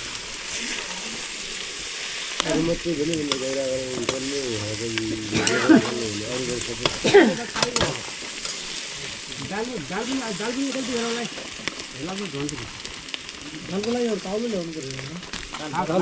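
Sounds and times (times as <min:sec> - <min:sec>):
food sizzling in a pan: 0:00.0 - 0:16.0
utensil clicks and scrapes on pan: 0:03.1 - 0:04.4, 0:05.3 - 0:15.6.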